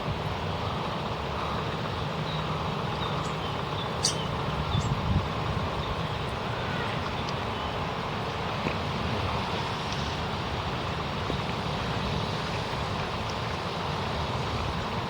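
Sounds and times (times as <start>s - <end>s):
wind noise: 4.0s - 7.2s.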